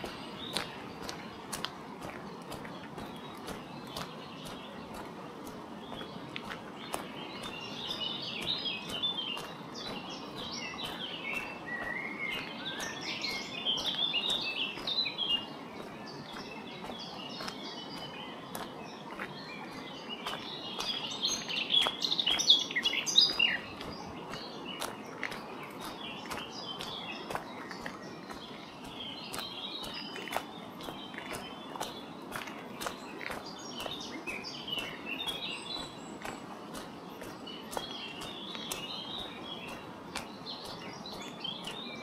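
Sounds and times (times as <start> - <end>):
footsteps on gravel: 0.0 - 42.0
songbirds chirping: 0.0 - 42.0.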